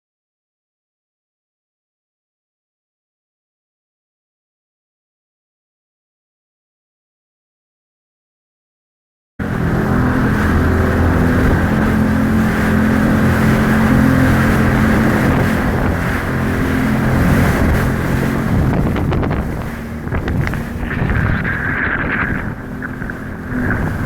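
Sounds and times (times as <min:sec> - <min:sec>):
jet ski engine running: 0:09.4 - 0:24.0
rushing water and wind: 0:09.4 - 0:24.0
water slapping against hull: 0:09.4 - 0:24.0.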